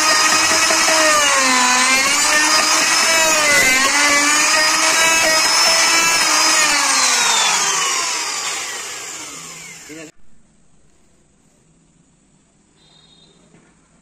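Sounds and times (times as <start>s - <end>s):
electric router whining: 0.0s - 10.1s.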